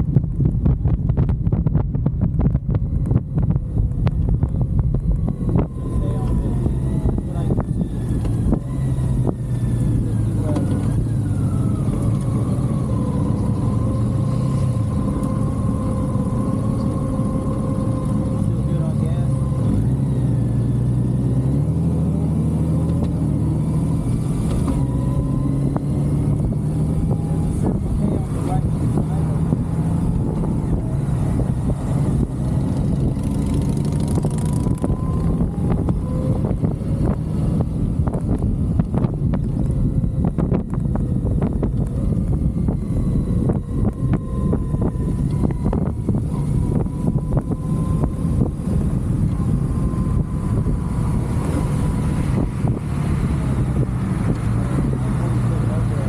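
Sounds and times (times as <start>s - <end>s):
motorcycle engine running: 0.0s - 56.0s
wind rumble on microphone: 0.0s - 56.0s.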